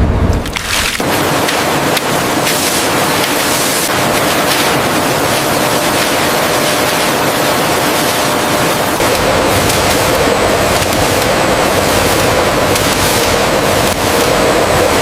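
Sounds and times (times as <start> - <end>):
rush of sea water: 0.4 - 15.0.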